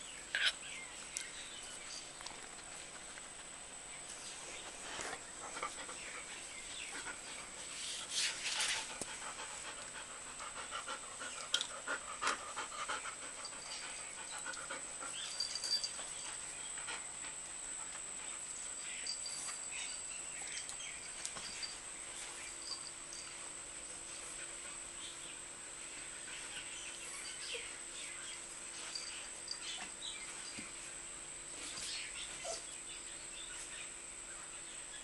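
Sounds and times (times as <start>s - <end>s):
scuffling and sniffing: 4.1s - 9.8s
dog panting: 8.5s - 18.4s.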